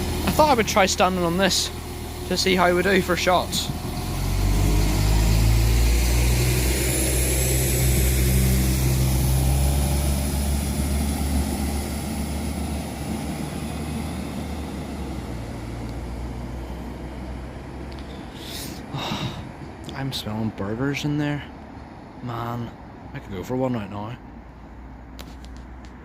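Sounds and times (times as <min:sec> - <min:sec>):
train diesel engines running: 0:00.0 - 0:25.2.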